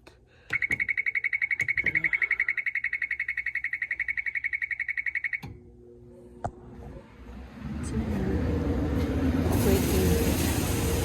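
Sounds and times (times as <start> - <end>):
rapid pulsing warning buzzer: 0.6 - 5.5.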